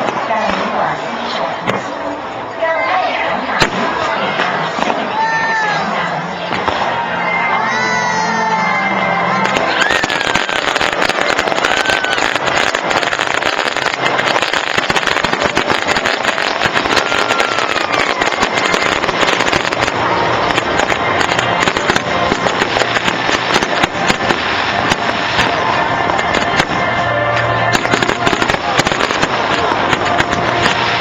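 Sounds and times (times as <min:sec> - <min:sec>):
fireworks crackling: 0:00.0 - 0:07.4, 0:09.0 - 0:31.0.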